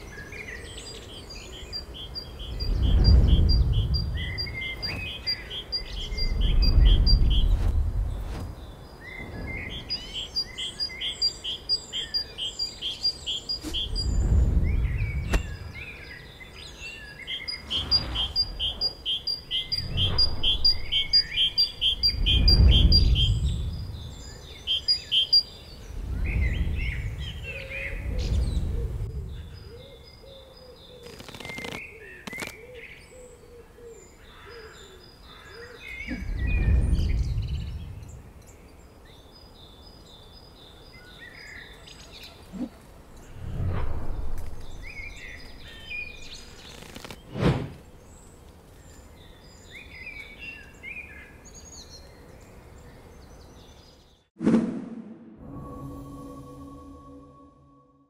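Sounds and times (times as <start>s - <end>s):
songbirds calling: 0.0s - 54.3s
fast high bird chirps: 2.0s - 16.0s, 17.3s - 27.4s
low rumbling noise: 2.4s - 10.2s, 17.6s - 24.7s, 25.8s - 29.6s, 36.2s - 38.4s.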